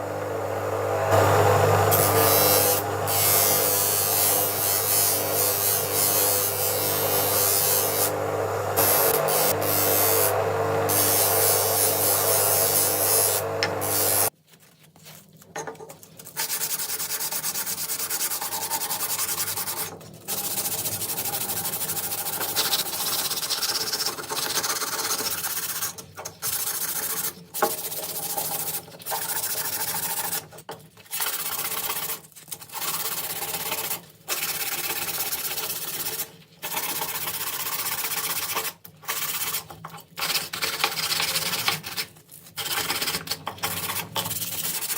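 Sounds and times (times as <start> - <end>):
electric tool motor humming: 1.1 - 14.3
hand sanding metal: 1.9 - 8.2, 10.9 - 14.3, 16.3 - 30.5, 31.2 - 44.9.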